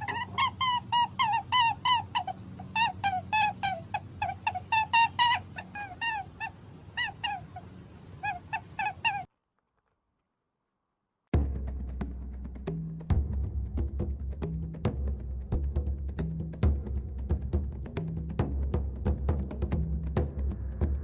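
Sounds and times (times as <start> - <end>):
animal high-pitched calls: 0.0 - 9.3.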